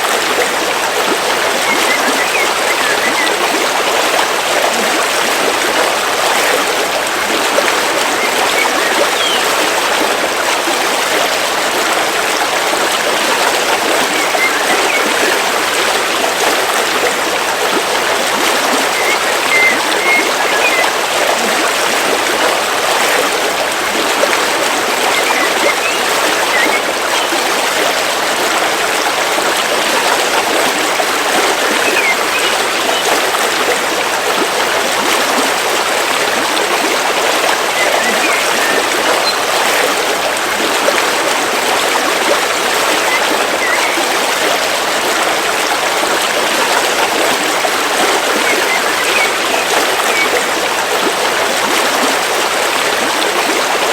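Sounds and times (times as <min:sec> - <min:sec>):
river water rushing: 0:00.0 - 0:53.9
faint bird chirps: 0:01.6 - 0:03.4, 0:08.2 - 0:09.5, 0:18.8 - 0:20.9, 0:25.1 - 0:27.4, 0:31.8 - 0:33.1, 0:37.7 - 0:39.4, 0:43.0 - 0:44.2, 0:48.4 - 0:50.3.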